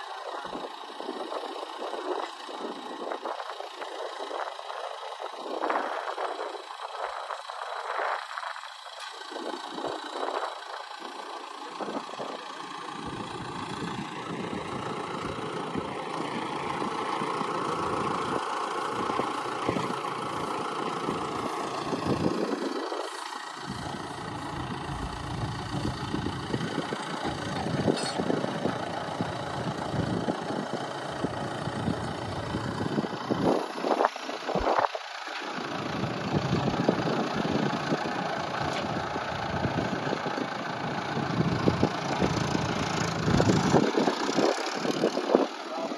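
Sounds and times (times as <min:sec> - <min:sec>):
vehicle engine running: 0:00.0 - 0:45.9
wind buffeting microphone: 0:13.0 - 0:35.0, 0:35.8 - 0:40.5, 0:41.2 - 0:45.6.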